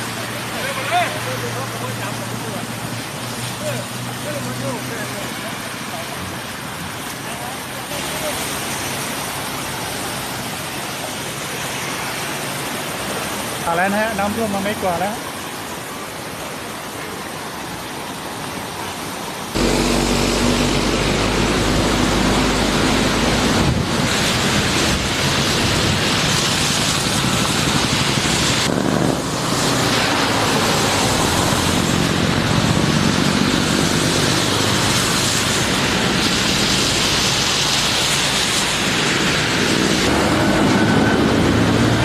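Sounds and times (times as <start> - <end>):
water and tyres rushing: 0.0 - 42.0
vehicle engine running low: 19.6 - 42.0.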